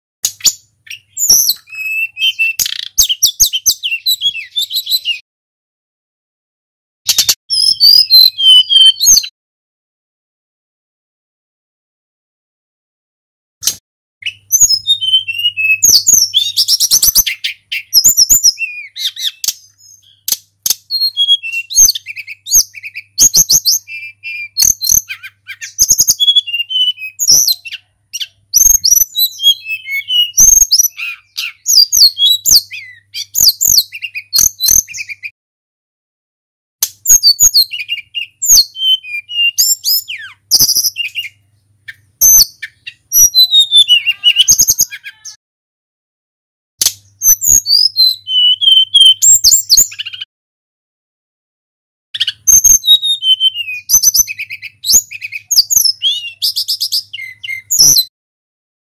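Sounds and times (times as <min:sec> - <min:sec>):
bird whistling and trilling: 0:00.2 - 0:05.2, 0:07.1 - 0:09.3, 0:13.6 - 0:35.3, 0:37.0 - 0:45.4, 0:46.8 - 0:50.3, 0:52.2 - 0:58.1.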